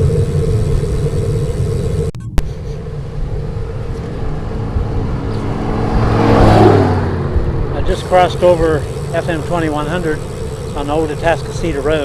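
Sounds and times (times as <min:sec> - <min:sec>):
road noise: 0:00.0 - 0:12.0
wind rushing over microphone: 0:02.5 - 0:08.0.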